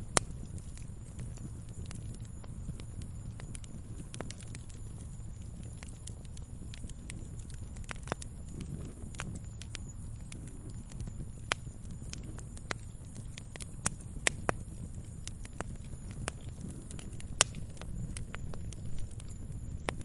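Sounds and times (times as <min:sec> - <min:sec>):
fire pops and snaps: 0:00.0 - 0:20.0
wood fire crackling: 0:00.0 - 0:20.0.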